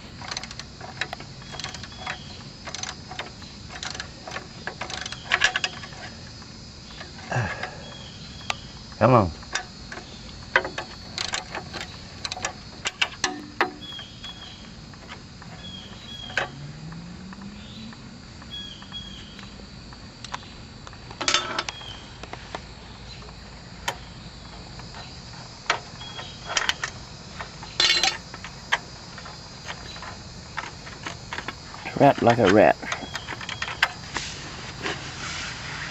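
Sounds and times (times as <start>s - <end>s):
high insect trill: 0.0s - 35.9s
hand tools clinking on metal: 9.4s - 16.5s, 21.2s - 21.8s, 25.7s - 34.0s.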